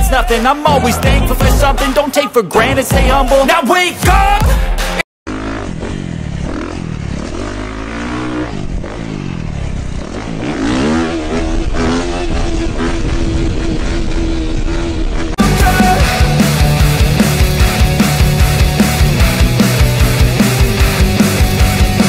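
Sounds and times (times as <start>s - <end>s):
dirt bike engine revving: 5.3s - 22.0s.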